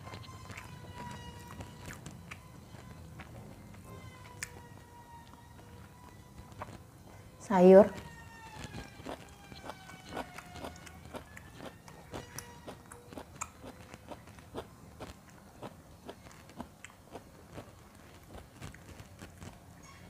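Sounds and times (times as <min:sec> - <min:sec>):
chewing mouth clicks and smacks: 0:08.7 - 0:19.6.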